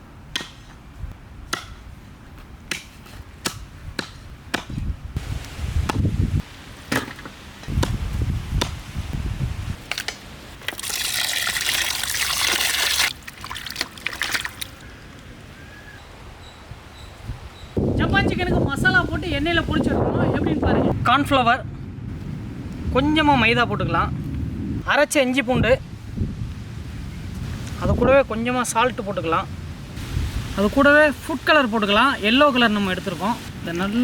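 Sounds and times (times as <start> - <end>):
knife chopping on a board: 2.7 - 4.8
running water: 10.6 - 14.9.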